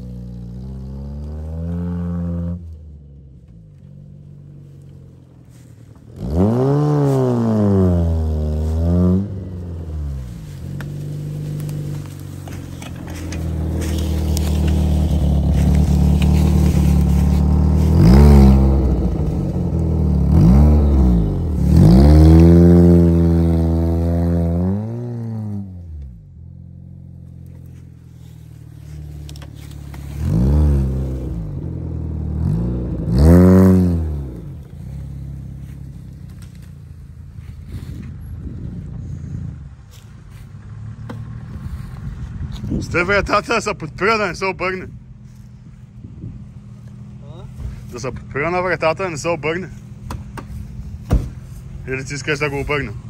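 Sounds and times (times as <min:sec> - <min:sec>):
car engine revving hard: 0:06.2 - 0:25.8, 0:29.8 - 0:35.8.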